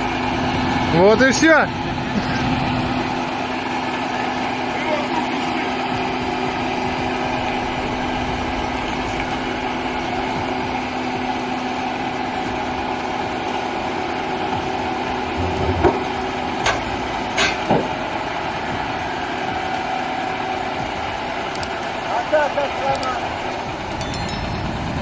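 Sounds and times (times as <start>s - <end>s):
truck diesel engine running: 0.0s - 25.0s.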